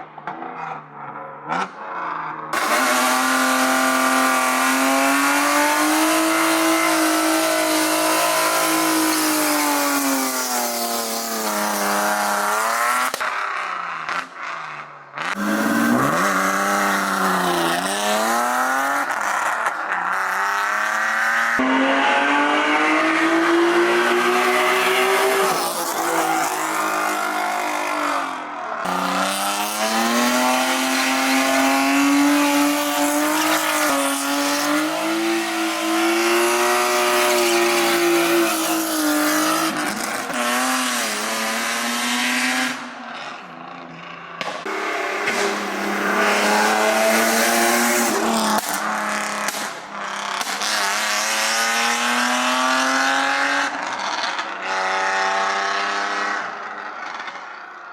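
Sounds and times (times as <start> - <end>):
car engine revving high: 1.5 - 13.2, 15.2 - 43.0, 44.6 - 56.6.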